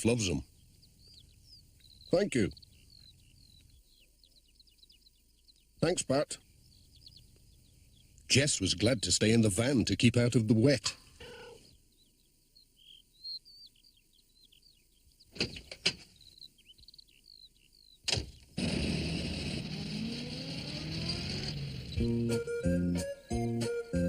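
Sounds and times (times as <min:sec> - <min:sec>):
bird chirping: 0:00.0 - 0:18.6, 0:20.3 - 0:24.0
van engine starting and running: 0:18.6 - 0:23.0.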